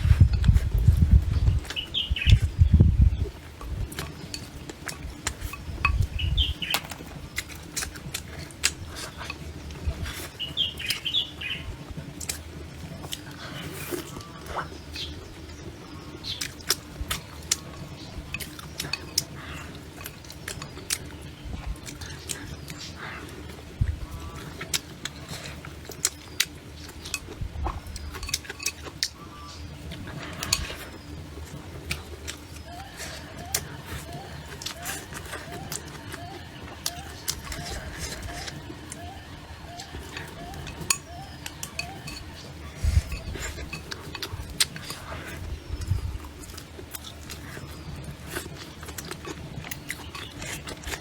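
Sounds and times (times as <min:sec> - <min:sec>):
small birds chirping: 0:00.0 - 0:51.0
utensils clinking against plates: 0:26.9 - 0:29.2, 0:36.8 - 0:39.0, 0:39.7 - 0:51.0.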